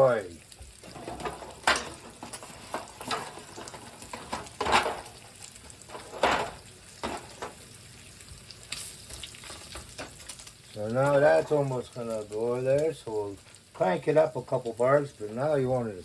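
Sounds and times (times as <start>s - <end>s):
bacon sizzling: 0.0s - 16.0s
utensil scraping in a pan: 0.8s - 7.6s.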